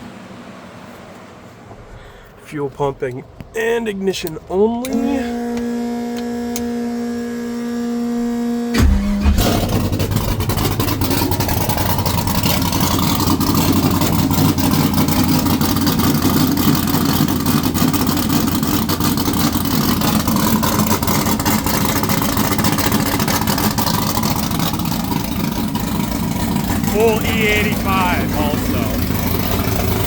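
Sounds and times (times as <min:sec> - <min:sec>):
engine running at fast idle: 0:05.2 - 0:30.0
engine cranking: 0:08.8 - 0:30.0.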